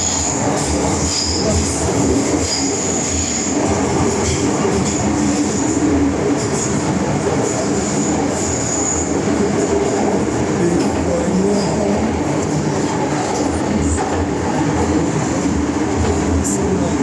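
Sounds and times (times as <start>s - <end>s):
train wheels and motors rumbling: 0.0s - 17.0s.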